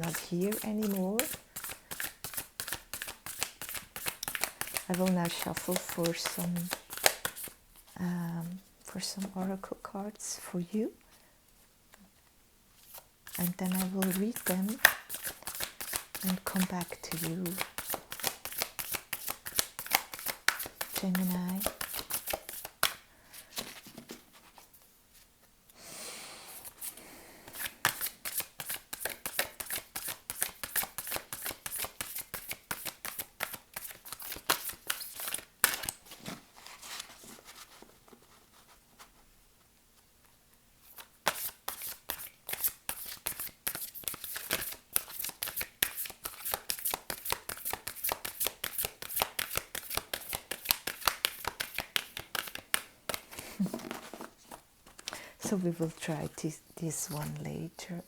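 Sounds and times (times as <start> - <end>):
cards being shuffled: 0.0 - 7.9, 12.8 - 24.7, 26.6 - 38.2, 40.8 - 56.0.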